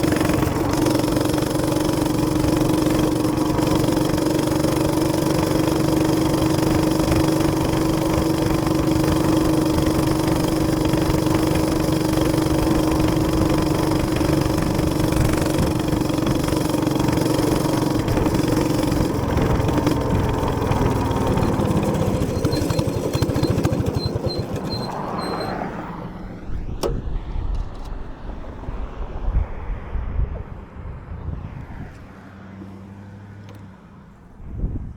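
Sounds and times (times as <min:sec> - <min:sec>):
small gas engine running: 0:00.0 - 0:27.0.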